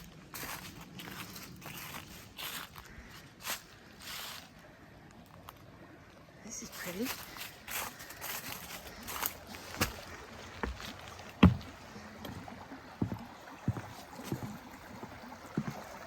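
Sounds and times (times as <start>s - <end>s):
footsteps on trail: 0.0s - 5.6s, 6.6s - 16.0s.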